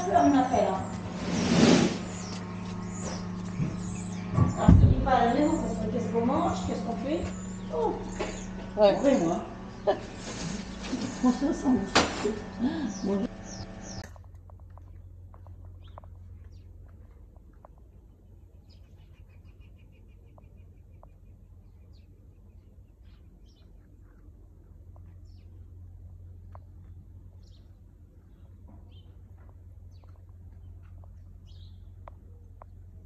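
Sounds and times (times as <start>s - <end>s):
small birds chirping: 0.0s - 14.0s, 14.8s - 33.0s
steady low hum: 0.0s - 19.4s
bird trill: 2.0s - 10.9s, 12.8s - 14.0s.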